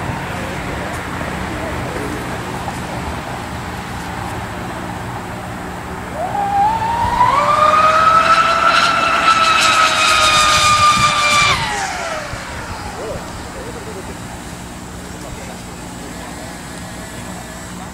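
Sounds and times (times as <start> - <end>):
model boat motor whining: 0.0 - 17.9.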